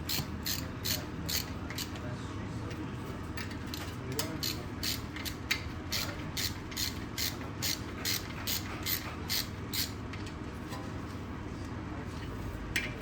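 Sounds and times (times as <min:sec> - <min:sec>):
ratchet wrench clicking: 0:00.1 - 0:01.9, 0:04.4 - 0:09.9.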